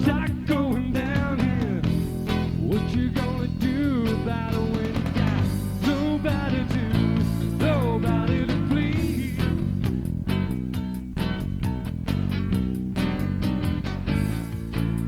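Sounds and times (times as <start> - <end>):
lead singer's voice: 0.0 - 10.0
rock band playing: 0.0 - 15.0.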